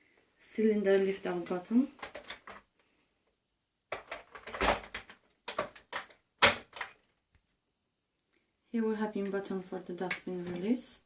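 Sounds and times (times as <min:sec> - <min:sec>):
plastic clicks and knocks: 0:02.0 - 0:02.6, 0:03.9 - 0:07.1.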